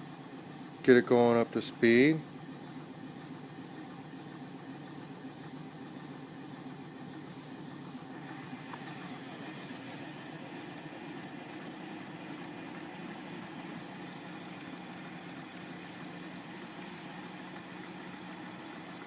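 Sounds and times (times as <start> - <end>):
pulse motor whirring and humming: 0.0 - 19.0
faint fine ticking: 8.2 - 19.0.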